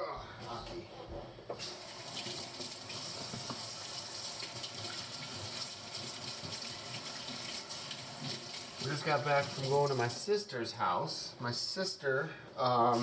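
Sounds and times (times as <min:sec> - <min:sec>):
kitchen tap running: 0:01.5 - 0:10.3.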